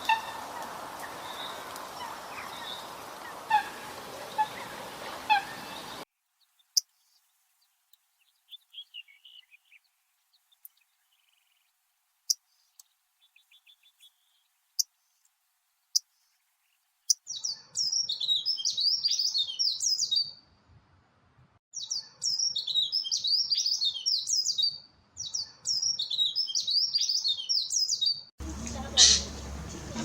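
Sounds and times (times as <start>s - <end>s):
background hiss: 0.0s - 17.3s, 28.4s - 30.0s
high bird chips and twittering: 21.8s - 30.0s
bird call notes: 28.4s - 30.0s.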